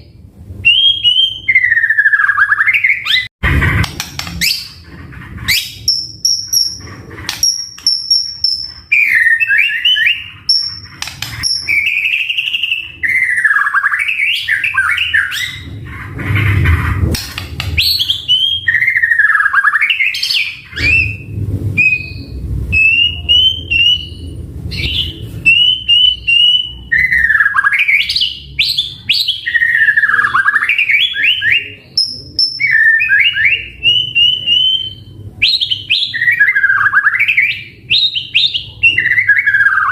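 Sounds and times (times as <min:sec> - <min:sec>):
bird singing varied song: 0:00.0 - 0:03.3, 0:05.4 - 0:15.8, 0:17.6 - 0:39.9
low rumble: 0:15.4 - 0:18.7, 0:20.5 - 0:26.9.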